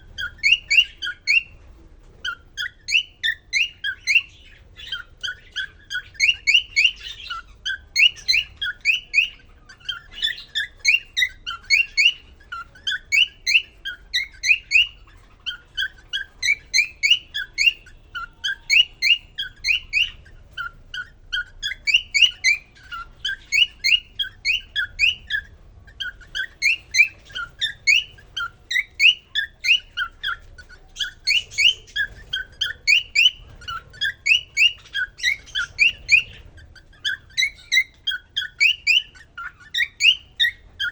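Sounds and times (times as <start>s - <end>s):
cockatiel whistling song: 0.0s - 1.6s, 2.2s - 40.9s.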